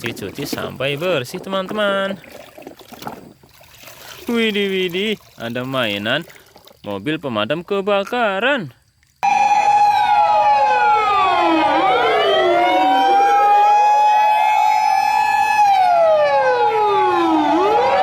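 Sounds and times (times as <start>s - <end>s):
electronic siren wailing: 9.2s - 18.0s.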